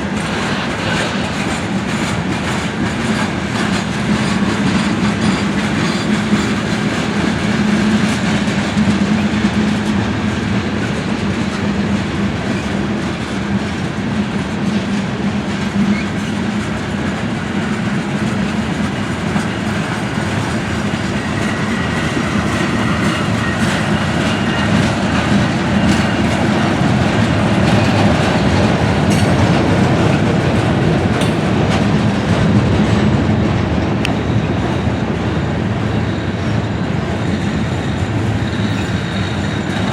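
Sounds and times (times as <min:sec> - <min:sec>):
freight train cars rolling: 0:00.0 - 0:39.9
wheels clicking over rail joints: 0:15.5 - 0:33.2.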